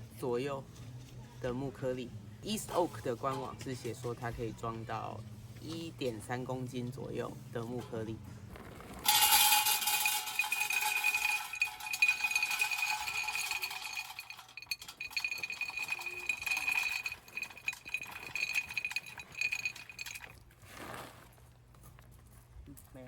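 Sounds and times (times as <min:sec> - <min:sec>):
metal pit ringing: 0:09.0 - 0:20.4
pellets rattling on metal: 0:09.0 - 0:20.4.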